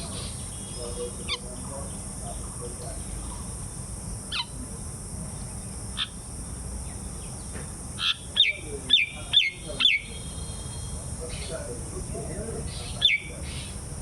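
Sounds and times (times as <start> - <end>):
bird calling: 0.0 - 3.5, 4.3 - 4.7, 5.9 - 6.2, 6.9 - 13.8
steady high hiss: 0.0 - 14.0.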